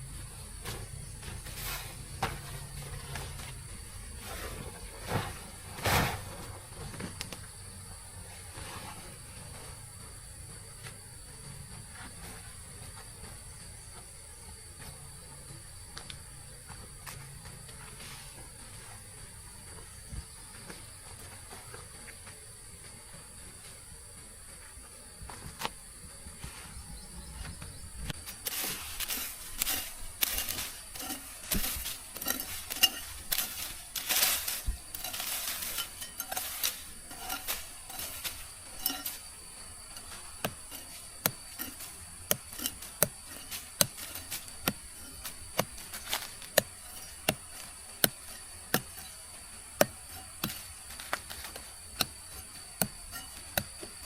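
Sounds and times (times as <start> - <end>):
insects trilling: 0.0 - 54.0
clattering and rustling: 28.2 - 54.0.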